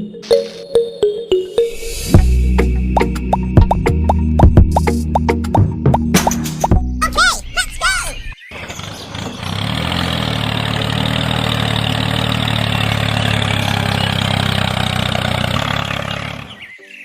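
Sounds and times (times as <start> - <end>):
engine starting and idling: 8.6 - 16.6.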